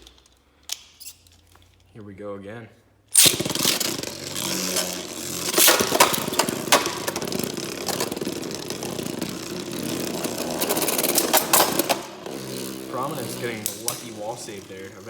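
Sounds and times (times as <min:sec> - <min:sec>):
spinning tops clacking together: 0:03.1 - 0:15.0
spinning tops whirring and scraping: 0:03.1 - 0:15.0.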